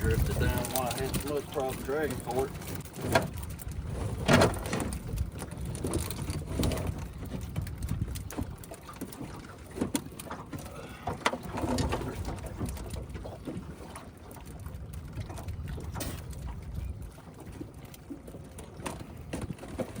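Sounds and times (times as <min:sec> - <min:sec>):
wind rumble on microphone: 0:00.0 - 0:09.8, 0:11.4 - 0:20.0
water splashing: 0:00.0 - 0:20.0
knocks against a boat: 0:04.0 - 0:05.0.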